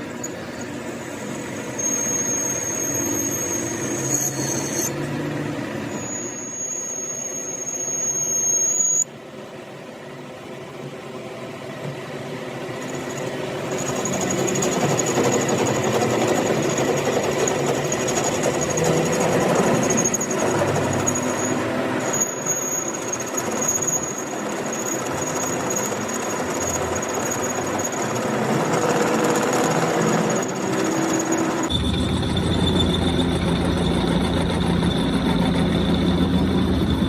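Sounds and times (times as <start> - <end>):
metalworking machine whining and grinding: 11.9 - 37.0.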